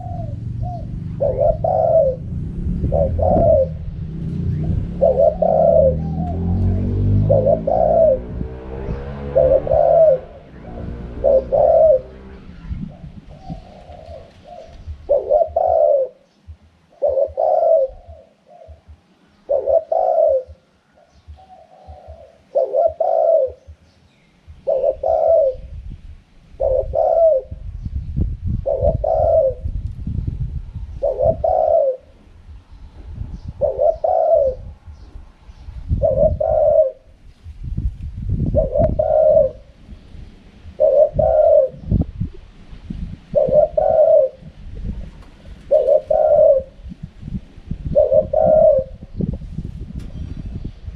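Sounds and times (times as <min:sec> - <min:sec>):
low rumble: 0:00.0 - 0:15.4, 0:25.6 - 0:31.5, 0:32.1 - 0:43.8
dove cooing: 0:00.0 - 0:25.8, 0:26.6 - 0:27.6, 0:28.4 - 0:29.8, 0:30.8 - 0:32.3, 0:33.3 - 0:37.4, 0:38.4 - 0:39.8, 0:40.7 - 0:42.4, 0:43.3 - 0:49.4.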